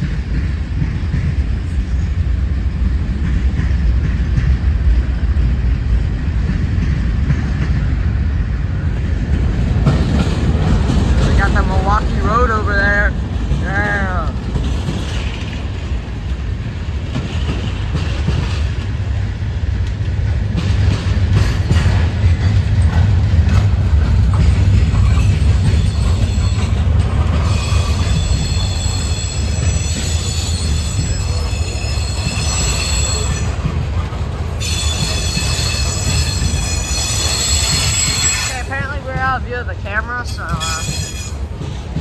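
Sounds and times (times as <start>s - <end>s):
train wheels rumbling on rail: 0.0s - 42.0s
high-pitched wheel squeal: 27.4s - 33.5s, 34.6s - 38.6s, 40.6s - 41.4s.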